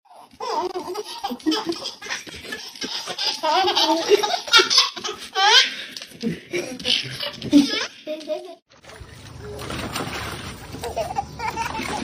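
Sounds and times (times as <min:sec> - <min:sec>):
people laughing: 0:00.6 - 0:05.2.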